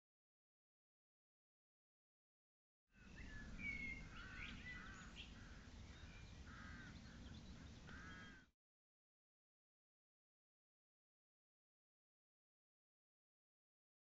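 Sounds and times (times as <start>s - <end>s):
higher bird chirps: 3.0s - 8.5s
distant birds calling: 3.0s - 8.6s.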